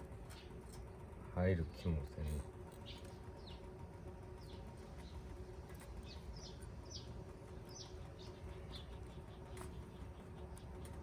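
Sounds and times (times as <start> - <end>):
bird chirping: 2.8 - 3.7, 6.0 - 11.0.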